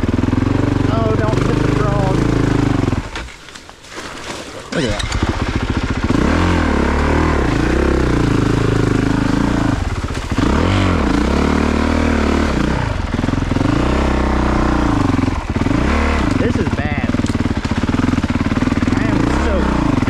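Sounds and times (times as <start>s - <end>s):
dirt bike engine revving: 0.0s - 3.3s, 4.6s - 20.0s.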